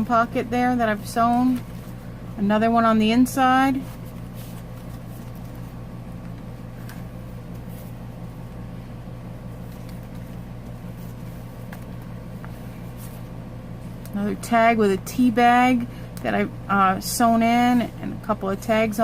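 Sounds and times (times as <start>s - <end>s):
low electrical hum: 0.0s - 19.0s
paper rustling: 3.7s - 5.8s, 9.6s - 13.2s.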